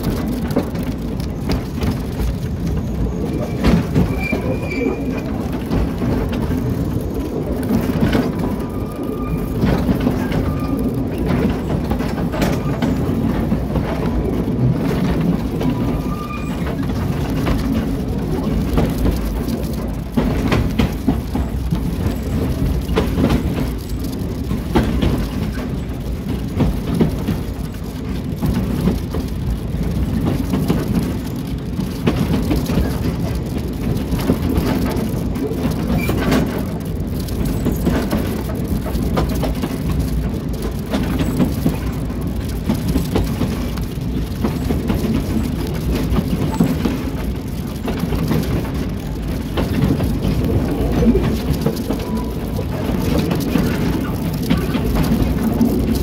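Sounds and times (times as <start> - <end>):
train rumbling and rattling: 0.0 - 56.0
wheel squeals: 2.6 - 5.7, 8.3 - 11.2, 15.7 - 17.0.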